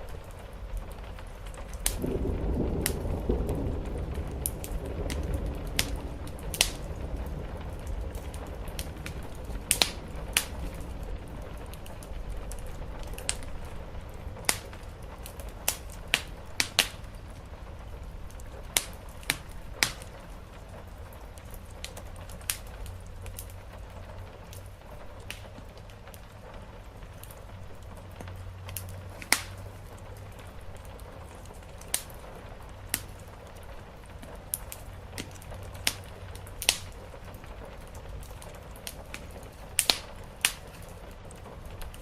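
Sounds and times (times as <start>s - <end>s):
deep rumble: 0.0s - 21.9s
rain hiss: 0.0s - 42.0s
wood fire crackling: 0.0s - 42.0s.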